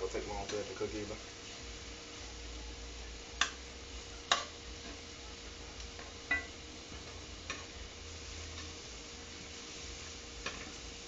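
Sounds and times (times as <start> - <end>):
faint steady hiss: 0.0 - 11.0
utensil clacking against a pan: 3.4 - 3.6, 4.3 - 5.0.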